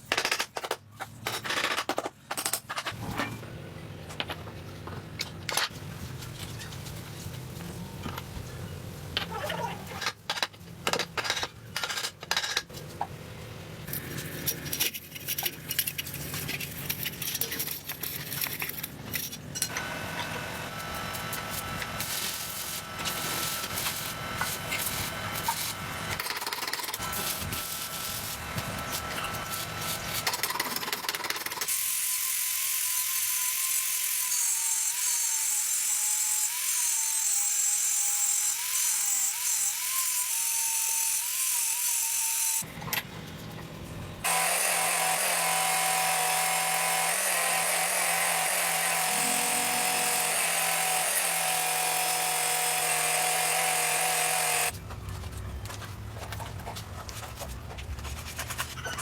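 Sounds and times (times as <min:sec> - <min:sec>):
power tool running: 0:44.2 - 0:54.7.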